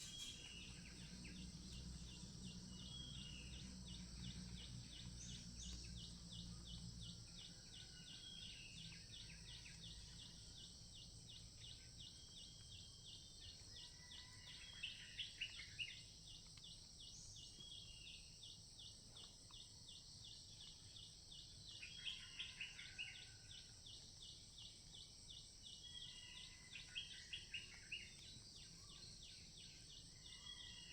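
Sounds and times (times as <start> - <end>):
insects chirping: 0.0 - 7.6.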